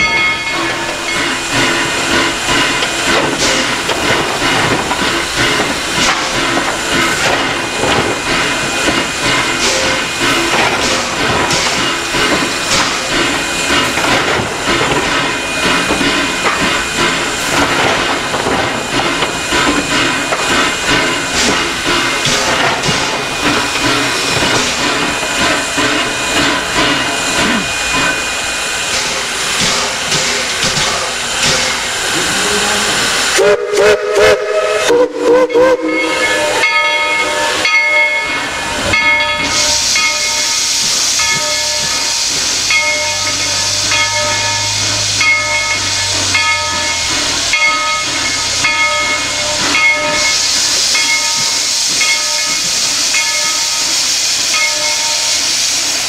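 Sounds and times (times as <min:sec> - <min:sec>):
steam locomotive venting steam: 0:00.0 - 0:56.0
steam whistle blasts: 0:32.2 - 0:37.7.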